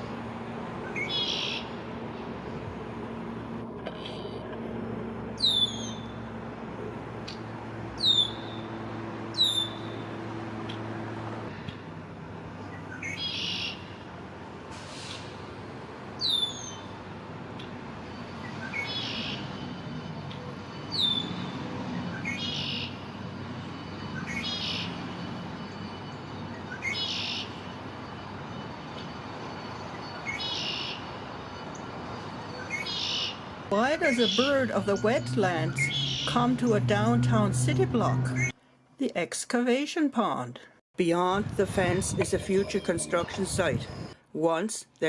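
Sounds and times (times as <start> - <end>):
blackbird singing buzzy trill: 5.4 - 6.2, 8.0 - 8.7
shrill falling bird whistle: 8.0 - 8.7.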